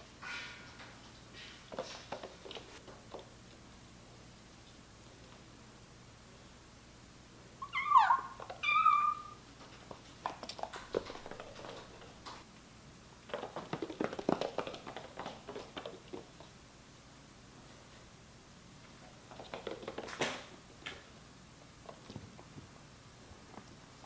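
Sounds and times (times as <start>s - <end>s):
kitten meowing: 7.6s - 9.4s
kittens' paws pattering: 8.4s - 12.4s, 13.2s - 16.6s.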